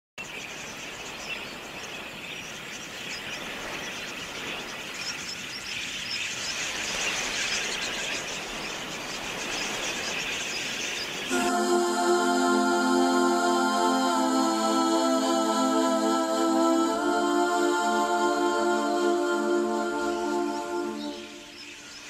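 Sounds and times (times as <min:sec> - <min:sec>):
birds chirping: 0:18.7 - 0:22.0.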